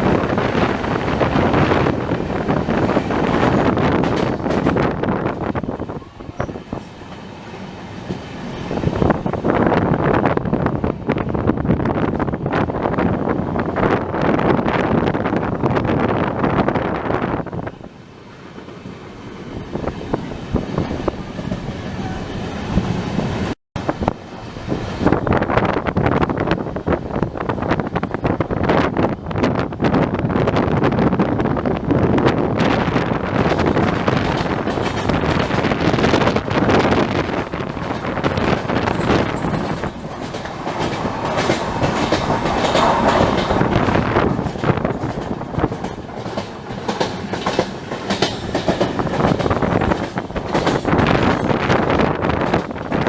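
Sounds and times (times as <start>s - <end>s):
train rumbling on track: 0.0s - 53.0s
wheels clicking over rail joints: 33.2s - 53.0s.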